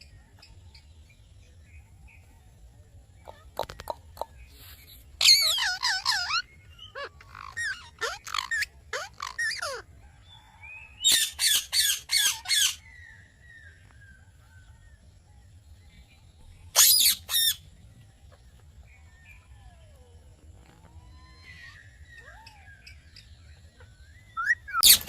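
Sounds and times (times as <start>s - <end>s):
parakeets squawking: 5.2s - 9.8s, 11.1s - 12.8s, 16.8s - 17.6s, 24.4s - 25.0s.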